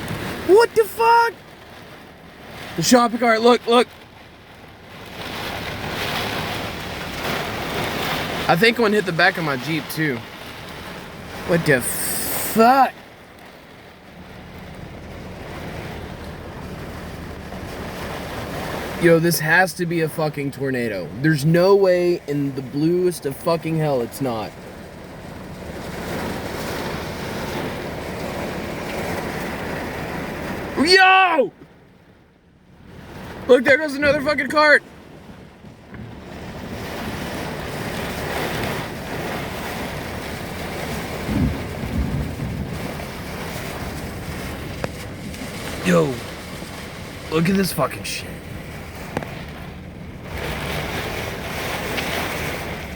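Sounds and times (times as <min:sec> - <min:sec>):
wind buffeting microphone: 0:03.8 - 0:12.2, 0:13.0 - 0:19.0, 0:32.7 - 0:47.6.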